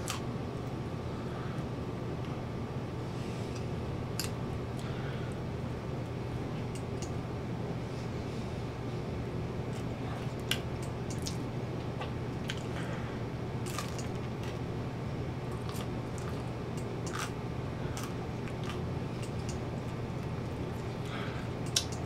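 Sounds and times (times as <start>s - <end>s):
steady low hum: 0.0s - 22.0s
person chewing pizza: 9.7s - 14.7s, 15.4s - 22.0s.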